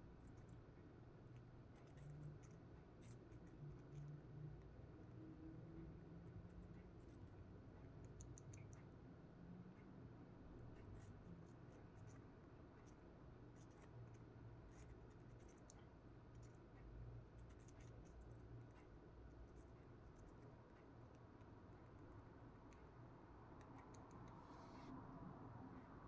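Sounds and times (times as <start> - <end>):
room hum: 0.0 - 26.0
bird nibbling apple: 1.3 - 4.7, 10.7 - 16.6, 17.4 - 22.9, 23.6 - 24.5.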